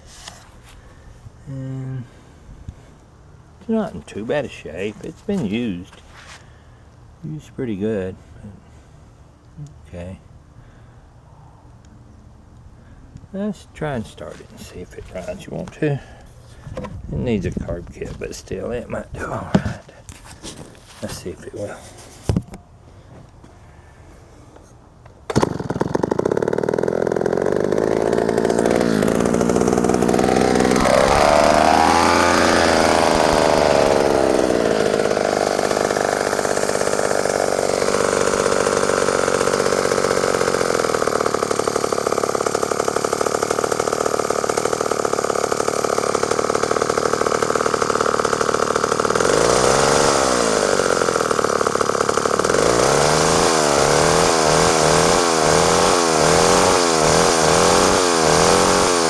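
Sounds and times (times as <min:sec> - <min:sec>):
chainsaw running: 0:14.1 - 0:16.6, 0:25.2 - 0:59.0.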